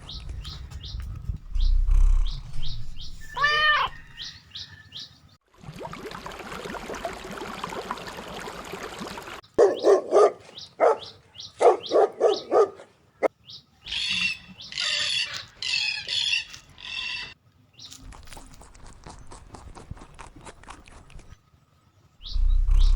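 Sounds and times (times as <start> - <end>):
rasping animal calls: 1.6 - 4.4, 22.2 - 22.9
dog barking: 9.6 - 12.9.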